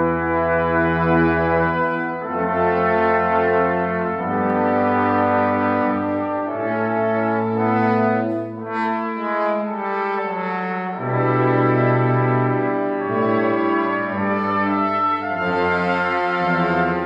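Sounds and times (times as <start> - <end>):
brass quintet playing chords: 0.0 - 17.0
loud low brass note: 1.6 - 17.0.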